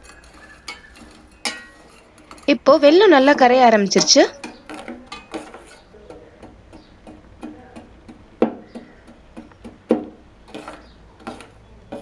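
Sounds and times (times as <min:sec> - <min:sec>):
ringing knocks: 0:00.0 - 0:12.0
spoon scraping a saucepan: 0:00.0 - 0:12.0.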